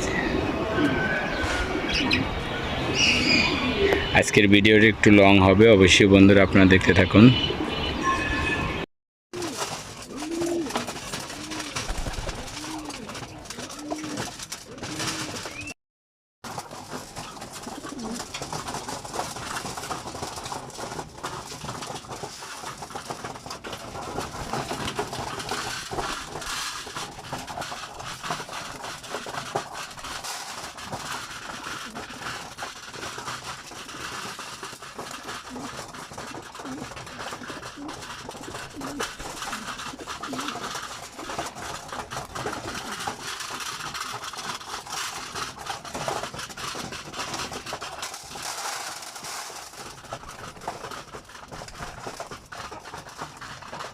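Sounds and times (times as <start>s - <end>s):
pigeons cooing: 0.0s - 4.1s, 9.4s - 15.7s, 17.6s - 18.4s, 30.8s - 44.2s
background bird noise: 0.0s - 4.4s.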